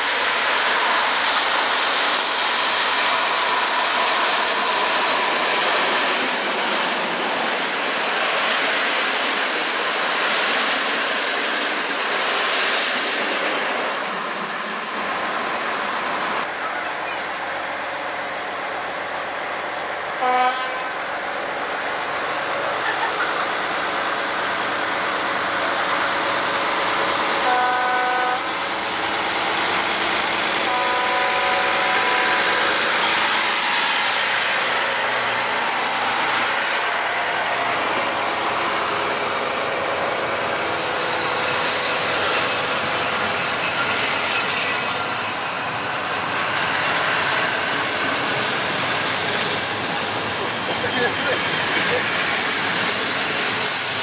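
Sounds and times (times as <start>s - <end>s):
locomotive engine: 0.0s - 54.0s
train wheel noise: 0.0s - 54.0s
diesel locomotive horn: 20.2s - 20.9s, 27.4s - 28.6s, 30.6s - 32.6s.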